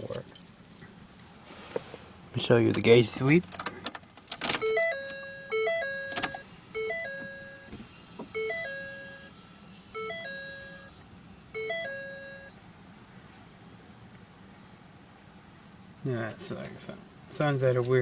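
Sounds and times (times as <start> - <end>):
dashboard warning chime: 4.5 - 12.6.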